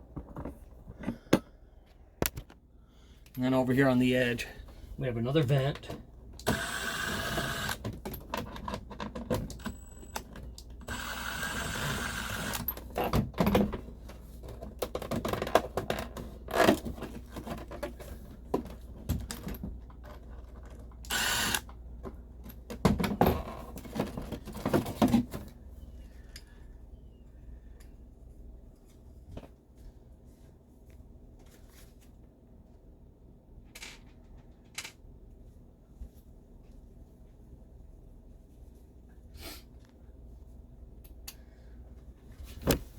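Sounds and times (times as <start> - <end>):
power drill-driver running: 6.4 - 7.8, 10.8 - 12.7, 21.1 - 21.7.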